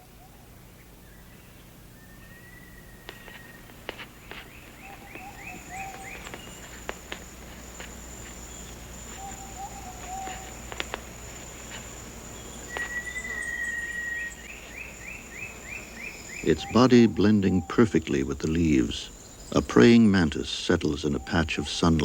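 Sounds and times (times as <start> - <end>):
birds calling: 0.0 - 22.0
insects droning: 0.0 - 22.0
bird whistle: 1.0 - 22.0
sharp clicks: 3.0 - 16.6.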